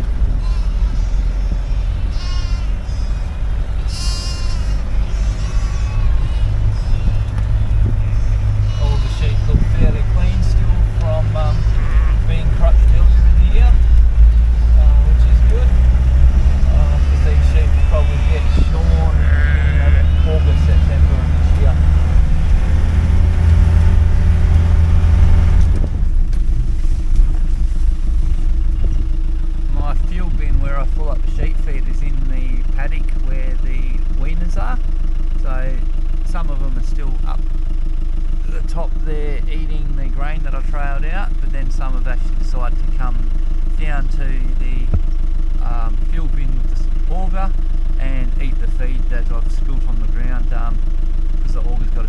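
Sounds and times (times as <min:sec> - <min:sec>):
sheep bleating: 0:00.0 - 0:25.4
vehicle engine rumbling: 0:00.0 - 0:52.0.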